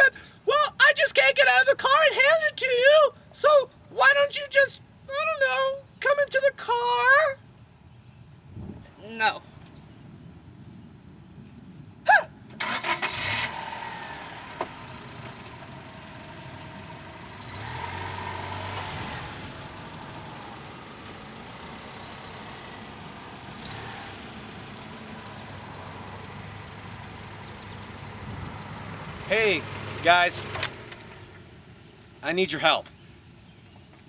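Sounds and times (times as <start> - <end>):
car engine running: 12.7 - 32.0.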